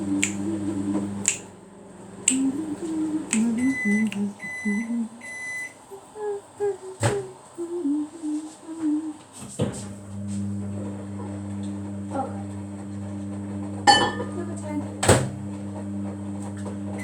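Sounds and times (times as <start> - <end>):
person humming quietly: 0.0 - 1.4, 2.2 - 9.4
microwave oven beeping: 0.0 - 6.0, 10.0 - 17.0.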